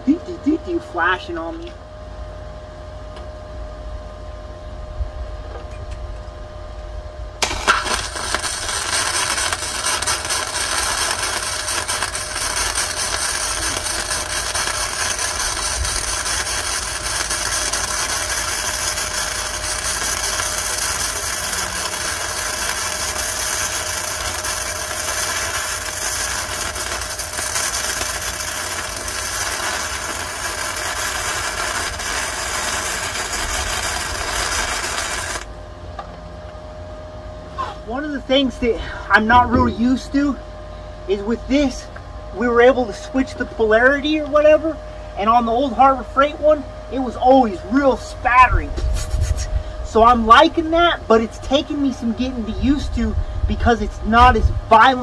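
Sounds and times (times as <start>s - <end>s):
welder low hum: 0.0s - 55.0s
welding arc crackling: 7.4s - 35.5s, 46.4s - 55.0s.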